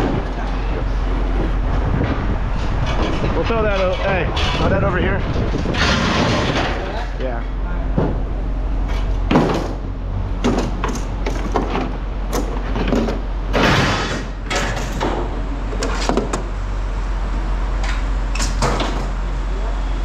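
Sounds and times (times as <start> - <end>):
metal scraping rattle: 0.0 - 7.2, 10.4 - 16.4
steady low hum: 0.0 - 20.0
scrap metal clanking onto pile: 5.6 - 7.1, 10.4 - 15.3.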